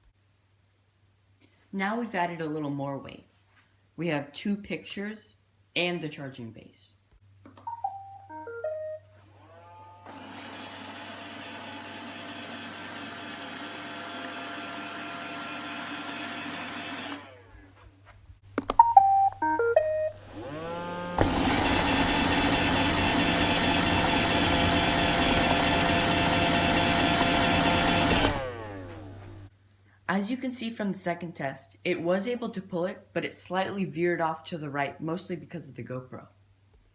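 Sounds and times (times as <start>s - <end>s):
robot vacuum beeps: 7.7s - 9.0s, 18.8s - 21.9s
robot vacuum motor whine: 9.2s - 17.7s, 20.2s - 29.5s.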